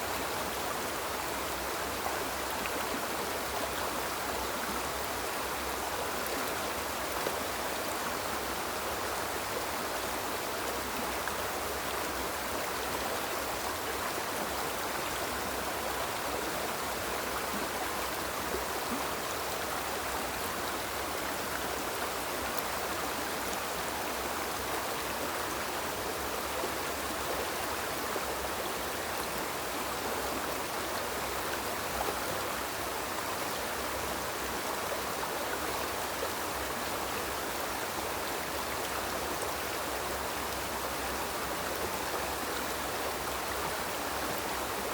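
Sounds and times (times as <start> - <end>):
river flowing over stones: 0.0 - 44.9.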